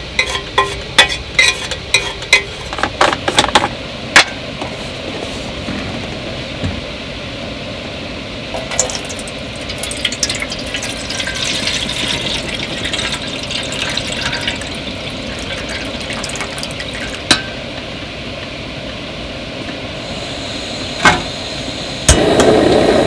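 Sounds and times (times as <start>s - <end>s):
water pouring: 8.6s - 17.4s.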